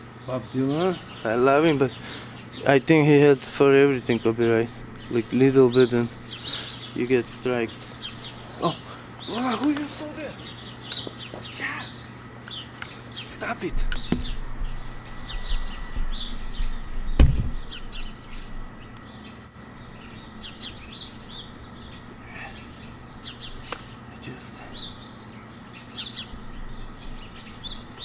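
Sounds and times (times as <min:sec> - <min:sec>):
small birds chirping: 0:00.0 - 0:28.0
sharp knock: 0:17.2 - 0:17.6.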